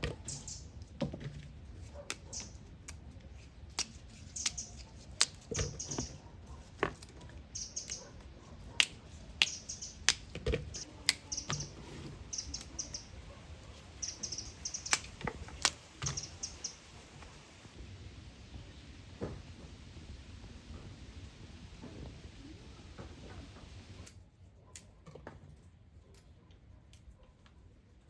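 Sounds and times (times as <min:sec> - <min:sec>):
small birds chirping: 0:00.0 - 0:17.7.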